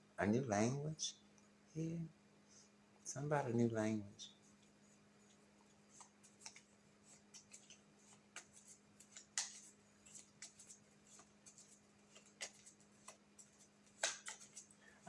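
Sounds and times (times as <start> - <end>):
low electrical hum: 0.0 - 15.0
cards clicking and rustling: 5.9 - 14.8
card snap: 14.0 - 14.6.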